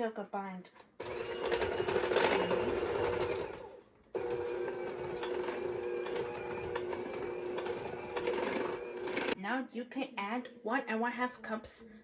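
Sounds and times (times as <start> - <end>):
electric mixer beating dough: 1.0 - 9.4.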